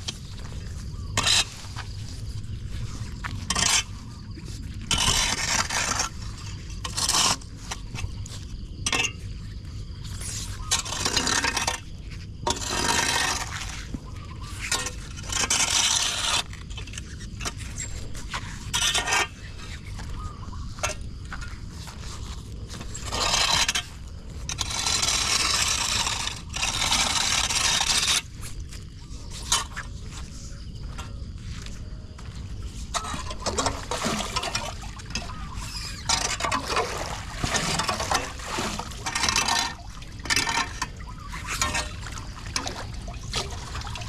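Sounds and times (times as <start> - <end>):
steady low rumble: 0.0 - 6.9, 28.3 - 34.0
tool scraping metal grate: 22.8 - 28.3, 33.0 - 42.0.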